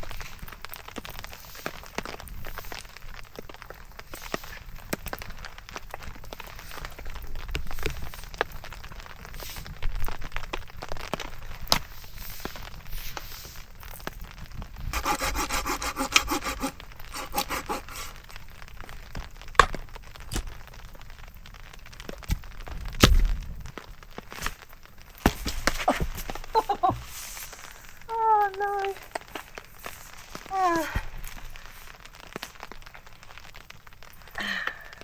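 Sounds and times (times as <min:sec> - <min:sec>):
saw cutting firewood: 0:14.9 - 0:18.5
wood clicks and knocks: 0:19.6 - 0:20.7.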